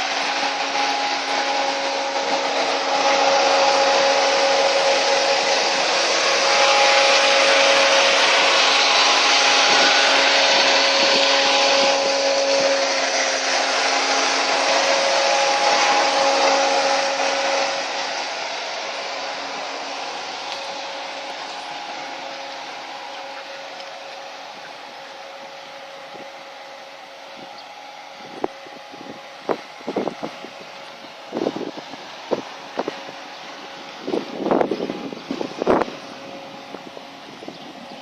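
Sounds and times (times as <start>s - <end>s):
radiator cooling fans whirring: 0.0s - 38.0s
steady hum tones: 0.0s - 38.0s.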